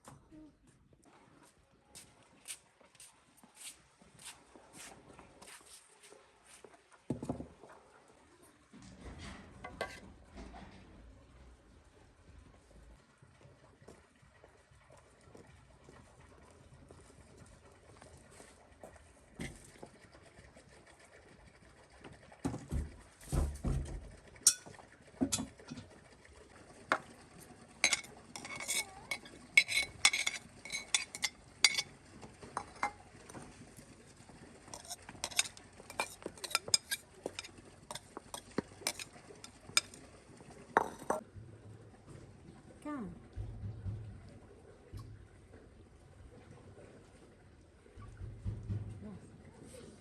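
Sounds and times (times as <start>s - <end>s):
metal utensils and dishes clinking: 9.7s - 10.1s, 24.5s - 24.7s, 27.8s - 32.0s, 32.6s - 33.0s, 34.8s - 40.0s, 40.8s - 41.2s.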